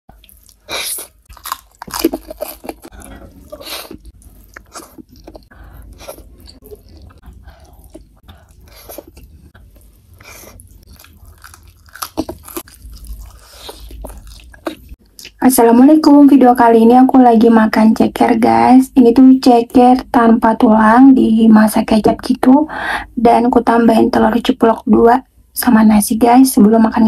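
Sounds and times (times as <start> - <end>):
chewing and wet mouth sounds: 0.1 - 15.4.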